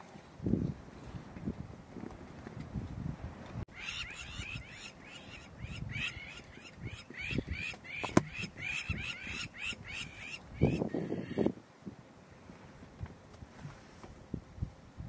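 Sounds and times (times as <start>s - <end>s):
bird calling: 3.7s - 11.6s.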